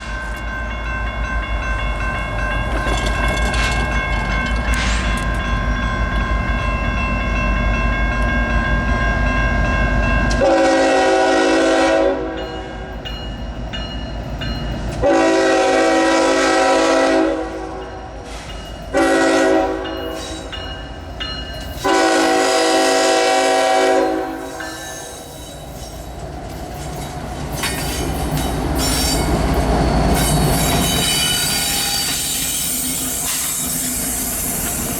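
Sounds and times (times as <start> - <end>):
freight train rumble: 0.0 - 34.9
locomotive horn blasts: 10.4 - 12.5, 15.0 - 17.9, 18.9 - 20.5, 21.8 - 25.2.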